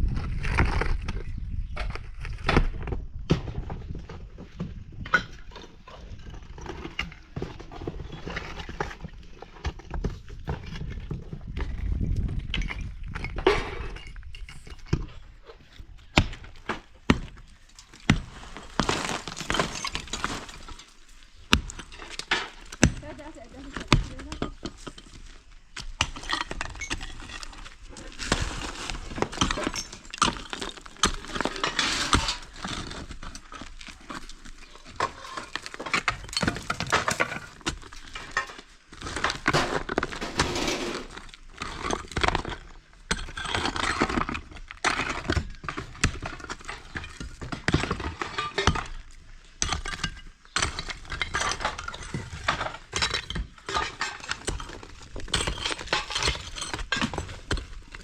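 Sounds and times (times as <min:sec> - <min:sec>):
debris falling: 0:16.2 - 0:24.3, 0:25.9 - 0:45.0.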